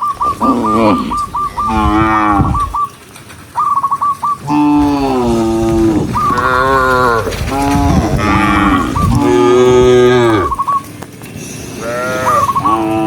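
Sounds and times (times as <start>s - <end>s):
cows mooing: 0.4s - 2.8s, 4.4s - 10.7s, 11.7s - 13.0s.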